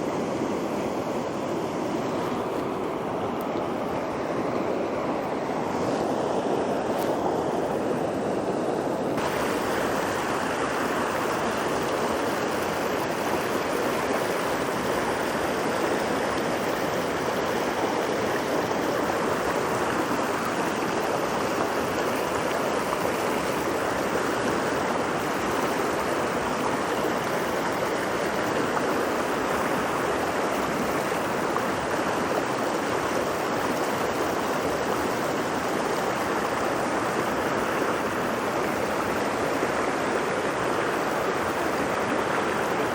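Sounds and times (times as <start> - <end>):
mountain stream flowing over rocks: 0.0 - 42.9.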